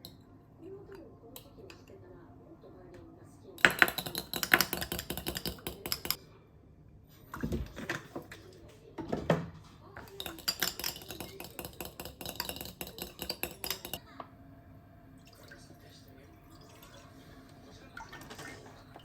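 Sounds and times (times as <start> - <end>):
kitchenware clinking: 3.6 - 6.2, 7.3 - 14.0.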